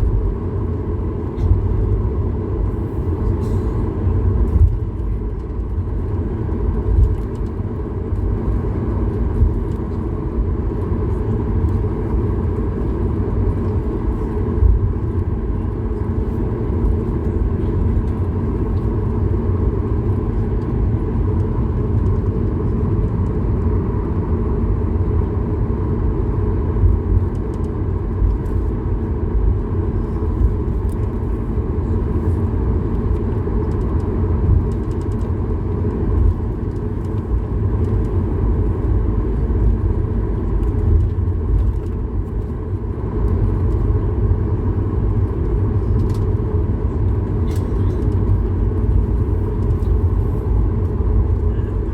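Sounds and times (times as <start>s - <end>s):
airplane cabin engine rumble: 0.0s - 51.9s.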